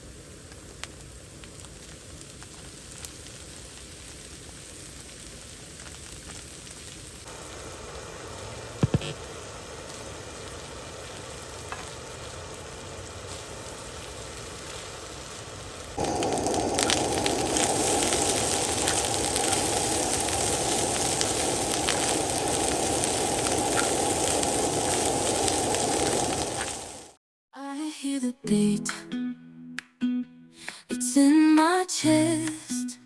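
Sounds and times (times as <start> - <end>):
food sizzling in a pan: 0.0 - 27.2.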